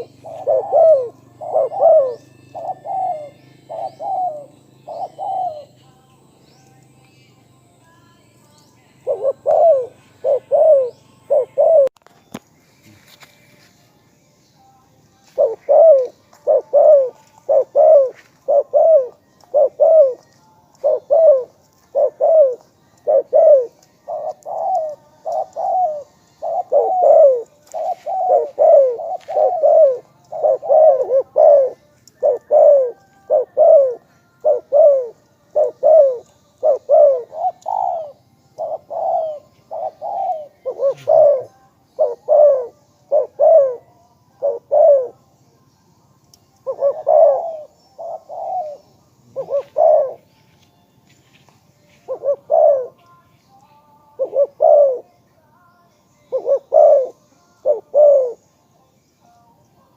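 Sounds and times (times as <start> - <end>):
dove cooing: 0.0 - 5.8, 9.0 - 12.0, 15.4 - 45.2, 46.6 - 50.3, 52.0 - 53.0, 54.2 - 55.1, 56.3 - 58.5.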